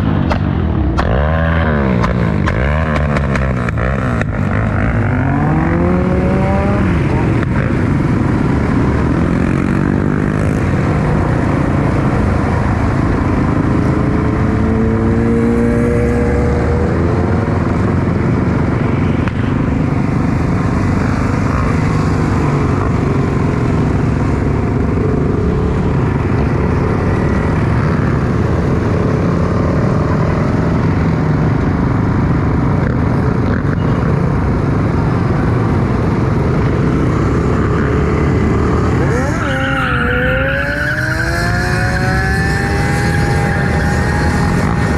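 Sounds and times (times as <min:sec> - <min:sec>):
motorcycle engine revving: 0:00.0 - 0:18.5, 0:36.3 - 0:44.9
motorcycle engines running: 0:00.0 - 0:44.9.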